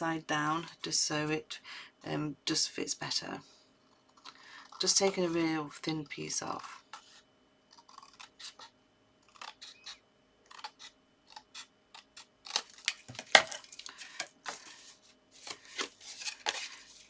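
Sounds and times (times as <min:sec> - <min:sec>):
card rustling: 0:12.5 - 0:17.0.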